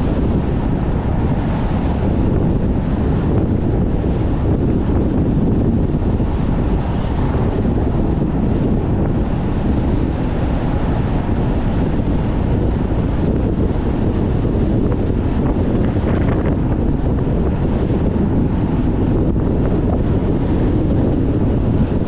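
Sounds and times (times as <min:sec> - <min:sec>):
car running and road noise: 0:00.0 - 0:22.0
wind buffeting microphone: 0:00.0 - 0:22.0.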